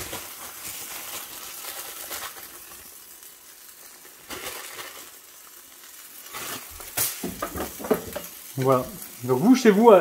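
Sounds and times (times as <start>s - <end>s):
cheese rustling: 0.0s - 7.2s
wrap sizzling in frying pan: 0.0s - 10.0s.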